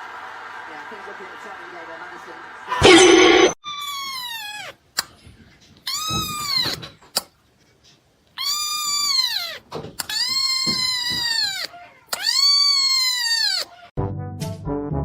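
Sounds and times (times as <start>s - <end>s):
cat meowing: 8.4s - 13.9s.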